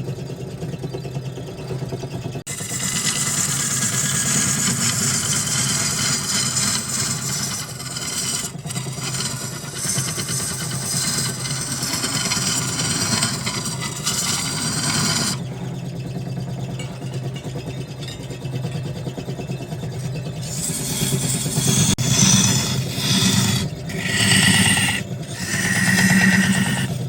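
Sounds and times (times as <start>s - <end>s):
wood lathe motor hum: 2.4s - 15.8s, 20.0s - 27.0s
turning tool scraping wood: 2.5s - 15.6s, 20.4s - 27.0s.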